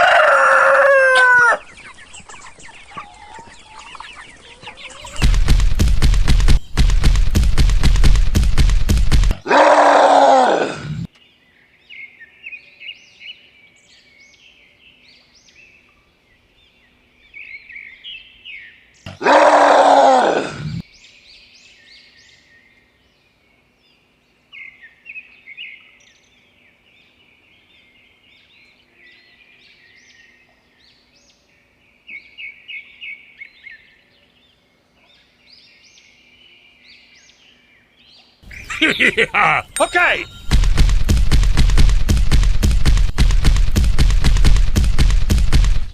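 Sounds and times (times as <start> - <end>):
small birds chirping: 0.2 - 10.2, 10.9 - 45.9
loud rapid rattle: 5.1 - 9.4, 40.2 - 45.9
loud drawn-out animal calls: 9.4 - 11.1, 19.1 - 20.8.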